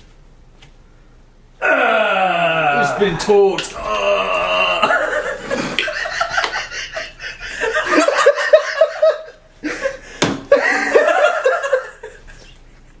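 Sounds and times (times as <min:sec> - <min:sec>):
people laughing: 0:02.7 - 0:12.6.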